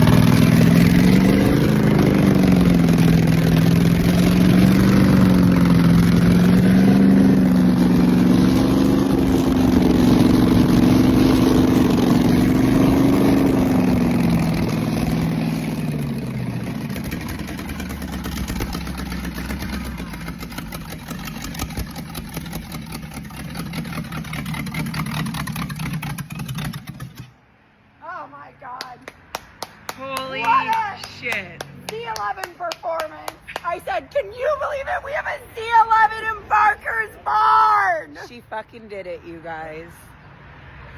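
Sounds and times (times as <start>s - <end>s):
car engine idling: 0.0s - 27.4s.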